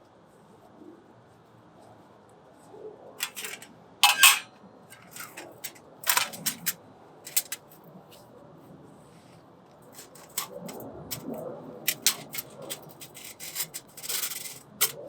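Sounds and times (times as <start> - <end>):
sharp irregular clicks and cracks: 5.0 - 7.6, 10.0 - 15.0.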